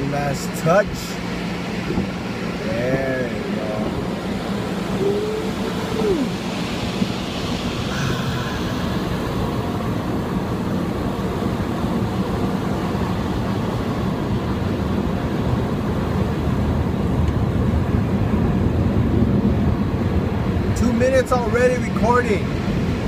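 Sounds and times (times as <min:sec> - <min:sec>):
car wash machinery: 0:00.0 - 0:23.0.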